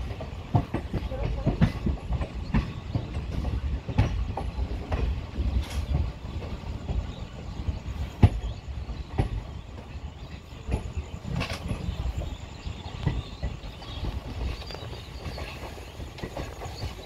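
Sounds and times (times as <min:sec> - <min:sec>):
train running gear rumble: 0:00.0 - 0:17.0.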